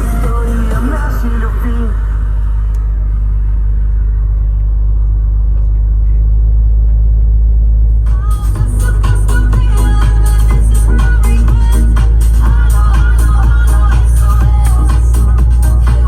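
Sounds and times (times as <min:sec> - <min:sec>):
music: 0:00.0 - 0:03.8, 0:08.0 - 0:16.0
truck driving drone: 0:00.0 - 0:16.0.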